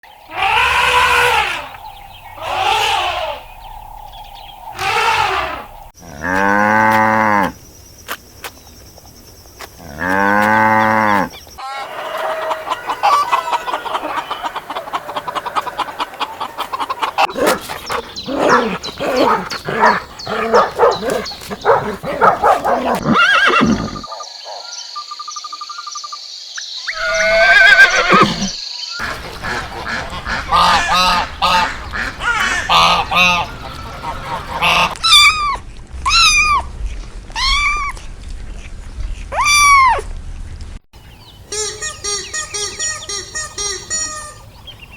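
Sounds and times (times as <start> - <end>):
animal calls: 0.1 - 6.6, 10.0 - 24.8, 26.9 - 36.7
long low animal calls: 0.1 - 7.5, 9.9 - 24.1, 27.0 - 36.7.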